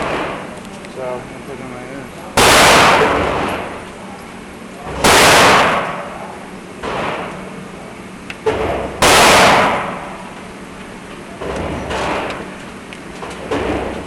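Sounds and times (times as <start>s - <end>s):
loud gunshot blasts: 2.4s - 3.8s, 4.9s - 6.2s, 6.8s - 7.3s, 8.5s - 10.2s.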